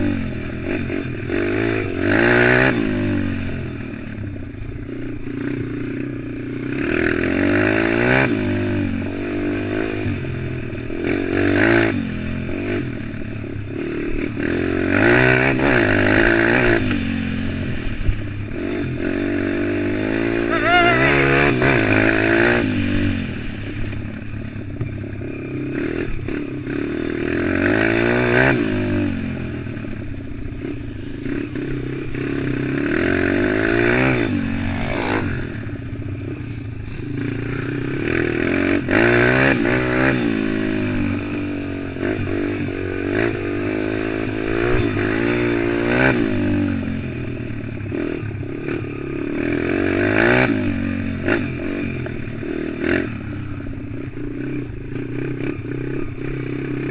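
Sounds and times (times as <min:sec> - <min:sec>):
pit bike engine revving: 0:04.8 - 0:56.9.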